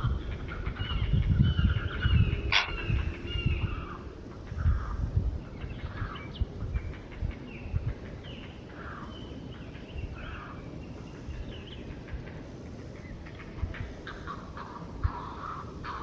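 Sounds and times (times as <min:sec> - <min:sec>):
steady low rumble: 0:00.0 - 0:08.1.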